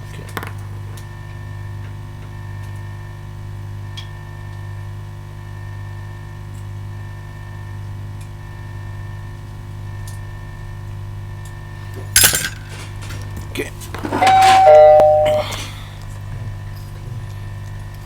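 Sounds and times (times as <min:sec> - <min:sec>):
electrical hum: 0:06.8 - 0:18.0.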